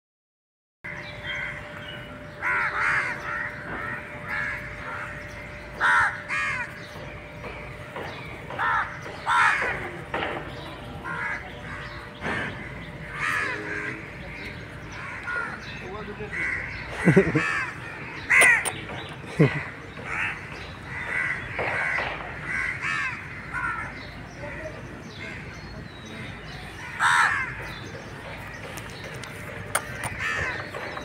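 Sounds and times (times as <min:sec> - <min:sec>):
birds harsh calls: 0:00.9 - 0:31.0.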